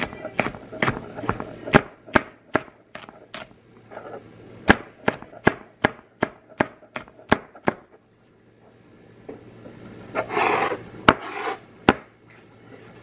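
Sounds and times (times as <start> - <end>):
knife chopping on stone countertop: 0.0 - 3.5, 4.7 - 7.8, 10.3 - 12.1.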